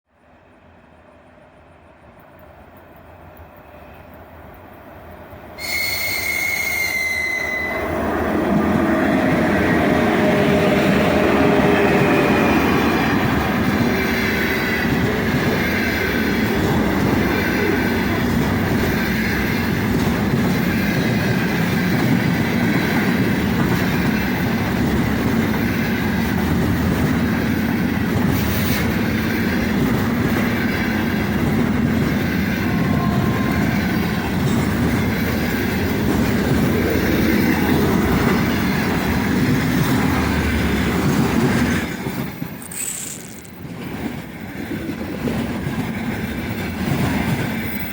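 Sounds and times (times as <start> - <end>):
freight train wheels on rails: 0.2 - 47.9.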